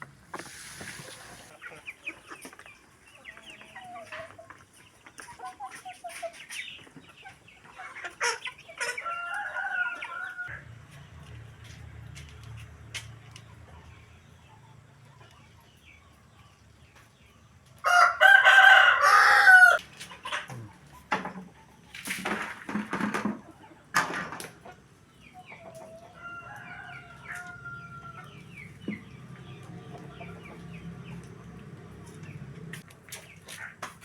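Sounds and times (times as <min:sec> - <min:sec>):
chickens calling: 0:00.0 - 0:11.4, 0:12.5 - 0:34.0
rooster crowing: 0:09.0 - 0:10.6, 0:17.8 - 0:19.8, 0:26.1 - 0:28.4.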